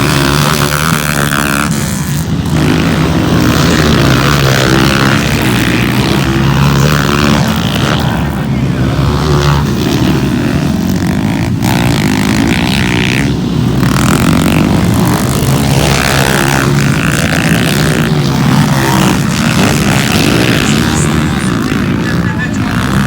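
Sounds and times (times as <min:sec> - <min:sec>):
motorcycle engines revving: 0:00.0 - 0:23.0.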